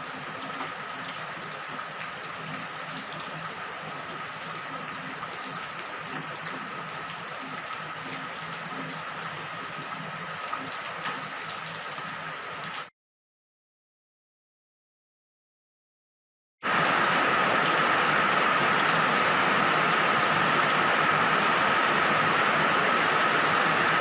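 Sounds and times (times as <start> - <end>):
steady rain hiss: 16.7 - 24.0.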